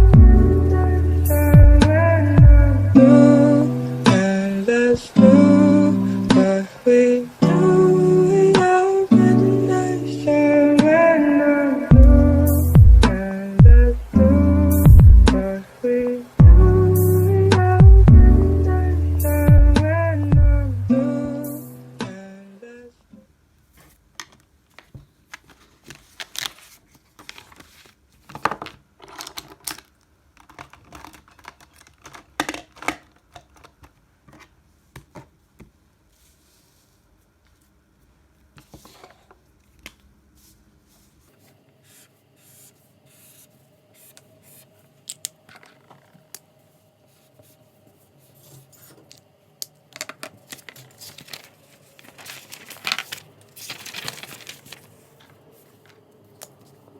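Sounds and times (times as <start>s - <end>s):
paper rustling and crinkling: 23.7s - 35.3s, 38.4s - 44.2s, 49.9s - 56.9s.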